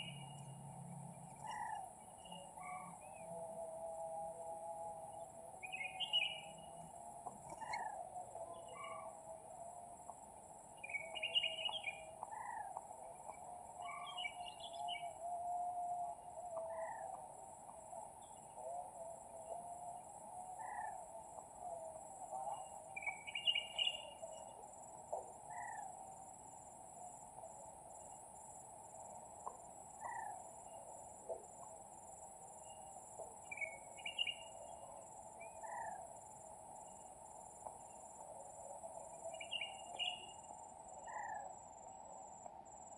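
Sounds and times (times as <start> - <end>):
bird chirps: 0.0 - 0.5, 5.6 - 6.7, 10.8 - 15.2, 22.5 - 24.6, 32.6 - 36.1, 38.9 - 40.4.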